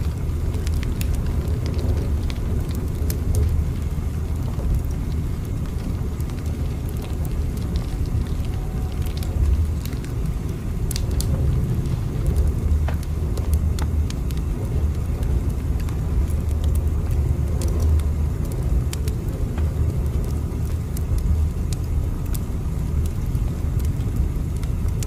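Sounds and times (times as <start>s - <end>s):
light clicks and crackles: 0.0s - 25.0s
moving train rumble: 0.0s - 25.0s.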